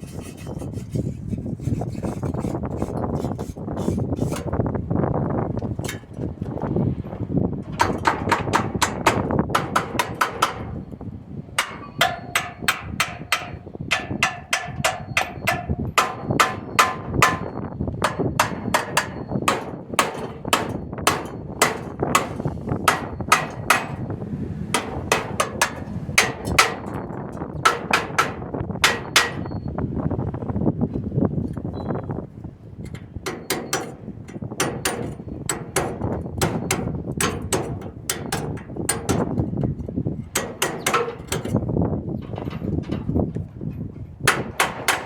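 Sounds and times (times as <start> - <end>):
hammer striking ringing metal: 11.6 - 22.3.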